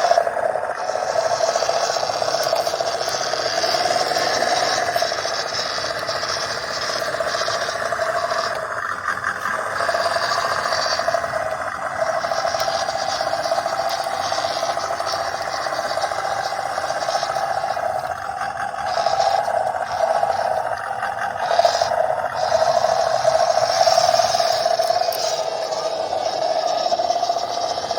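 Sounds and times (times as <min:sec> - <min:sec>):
toy truck electric motor whining: 0:00.0 - 0:27.9.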